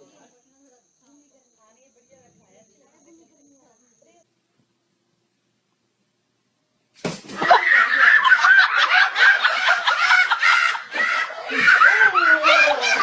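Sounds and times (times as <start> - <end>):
people laughing and giggling: 7.4 - 13.0.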